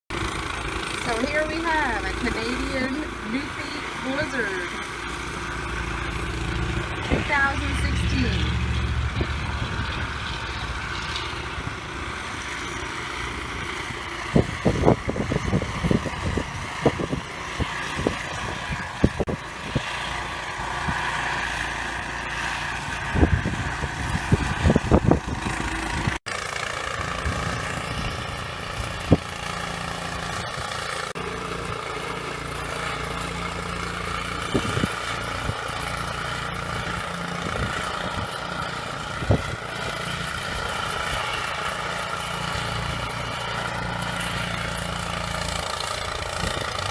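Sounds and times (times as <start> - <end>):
engine running: 0.1 - 46.9.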